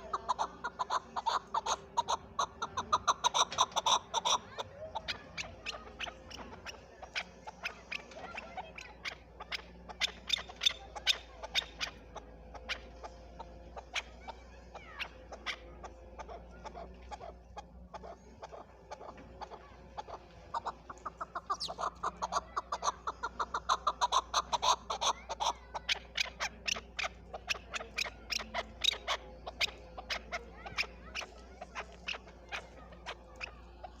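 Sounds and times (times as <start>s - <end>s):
partridge clucking calls: 0.0s - 34.0s.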